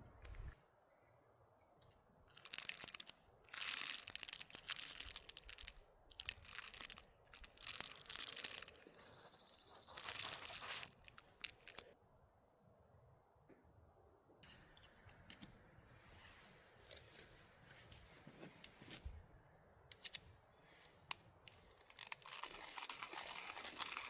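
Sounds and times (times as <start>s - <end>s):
small clicks: 1.8s - 11.9s
dry material crinkling and tearing: 2.3s - 11.9s, 21.6s - 24.0s.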